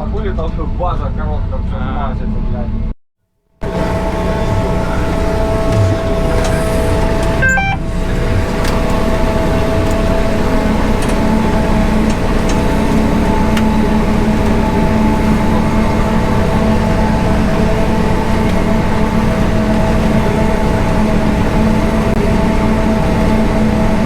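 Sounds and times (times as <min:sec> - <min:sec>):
heavy machine engine running: 0:03.6 - 0:24.0
high electronic chirp: 0:03.7 - 0:08.5.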